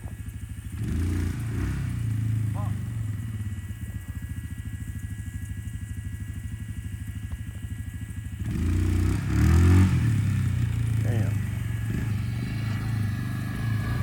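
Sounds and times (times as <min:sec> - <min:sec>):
motorbike engine idling and revving: 0:00.0 - 0:14.0.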